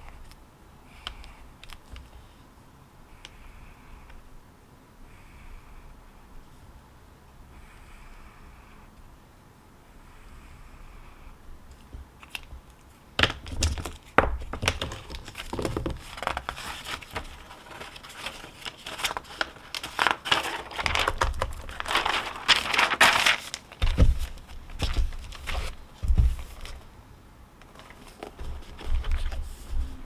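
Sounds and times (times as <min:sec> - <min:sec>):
material crinkling and rustling: 0:12.2 - 0:26.9, 0:27.6 - 0:30.0.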